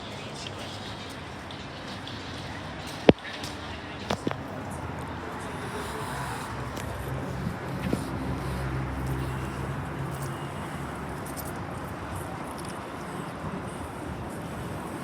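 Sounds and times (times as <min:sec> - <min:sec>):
steady background noise: 0:00.0 - 0:15.0
vehicle engine droning: 0:04.1 - 0:15.0.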